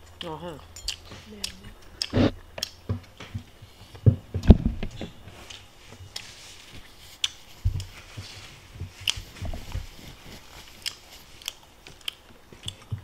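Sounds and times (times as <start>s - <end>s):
chewing and biting food: 0.1s - 3.2s, 5.5s - 13.0s
sharp mouth clicks: 0.9s - 2.8s
soft low mouth thumps: 1.7s - 5.1s.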